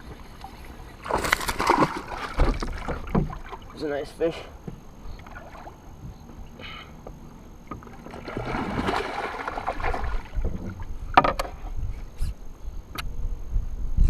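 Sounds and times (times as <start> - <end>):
water splashing: 0.6 - 4.0, 7.8 - 10.9
thumps against kayak hull: 1.1 - 3.6.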